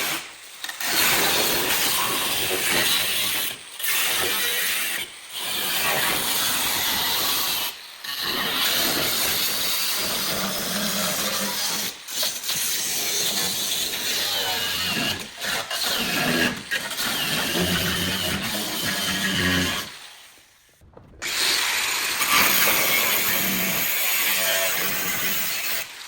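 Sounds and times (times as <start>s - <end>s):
hand tool scraping metal: 0.0s - 20.0s.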